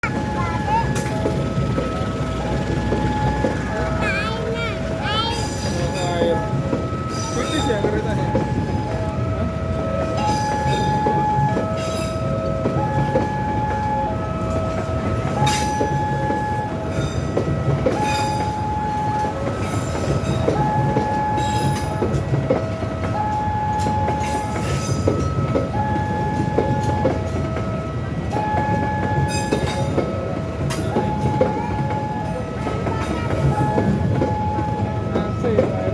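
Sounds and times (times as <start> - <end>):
passenger train rumbling past: 0.0 - 35.9
two-tone warning alarm: 0.0 - 35.9
wheels clicking on rail joints: 0.0 - 35.9
high wheel squeals: 5.2 - 9.0, 17.9 - 22.0.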